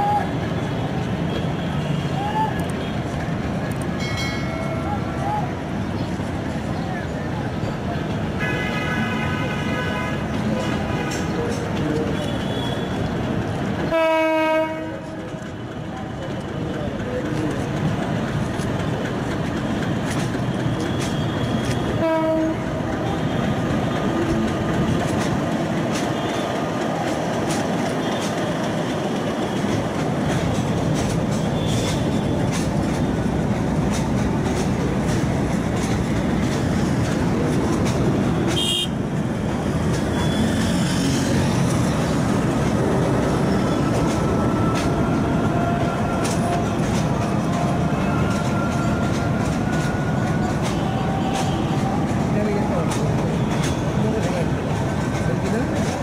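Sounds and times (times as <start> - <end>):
train rumble: 0.0 - 56.0
train horn: 8.4 - 11.3, 13.9 - 15.2, 20.8 - 23.6, 38.5 - 39.0.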